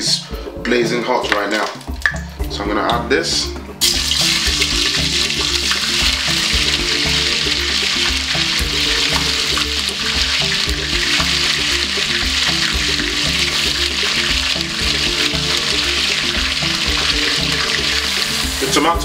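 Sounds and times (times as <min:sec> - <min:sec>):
vegetables sizzling in hot oil: 0:03.8 - 0:19.0.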